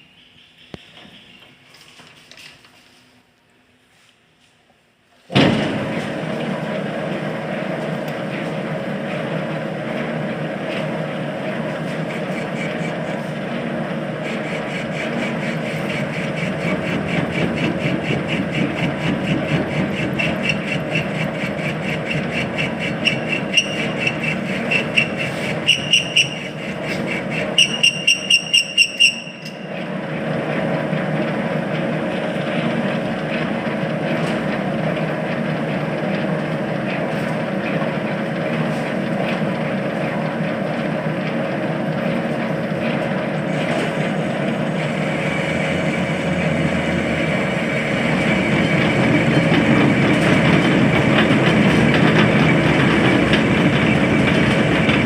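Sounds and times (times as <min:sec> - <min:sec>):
lathe running: 0:05.7 - 0:55.0
cutting tool squealing: 0:12.0 - 0:13.2, 0:14.2 - 0:29.6.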